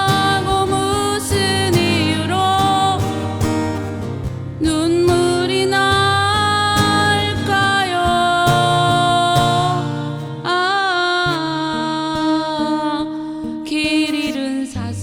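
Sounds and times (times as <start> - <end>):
acoustic guitar: 0.0 - 15.0
person singing a slow ballad: 0.0 - 15.0.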